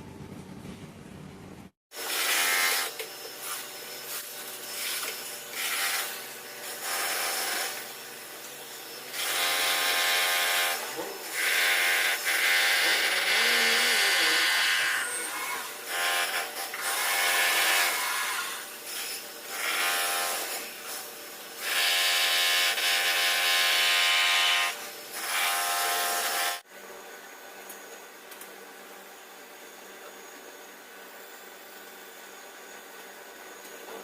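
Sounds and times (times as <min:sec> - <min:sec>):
power tool motor whining: 0:02.0 - 0:21.0.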